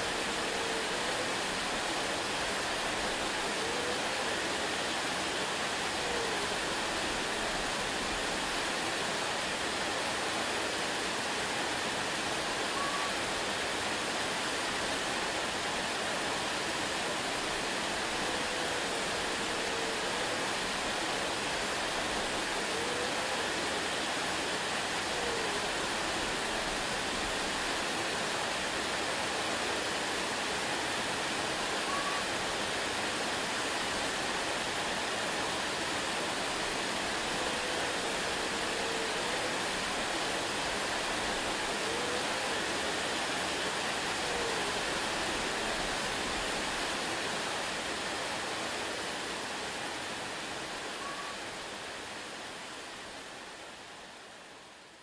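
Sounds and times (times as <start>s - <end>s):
waterfall rushing: 0.0s - 54.4s
faint short pitched calls: 31.9s - 32.3s, 51.0s - 51.5s.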